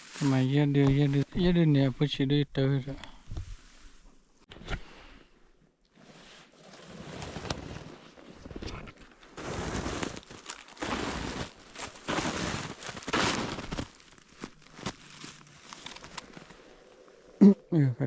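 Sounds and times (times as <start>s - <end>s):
crunching footsteps: 0.0s - 1.5s, 7.5s - 17.4s.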